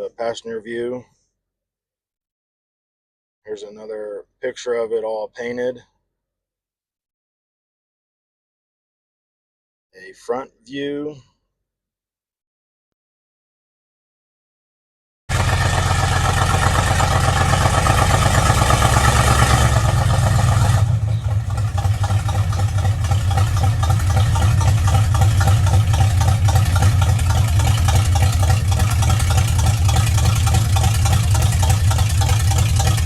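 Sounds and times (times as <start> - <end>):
pickup engine idling: 15.3 - 33.0.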